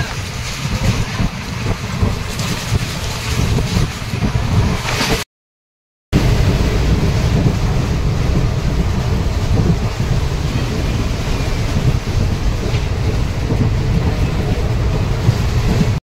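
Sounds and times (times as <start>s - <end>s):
moving train rumble: 0.0s - 5.2s, 6.2s - 16.0s.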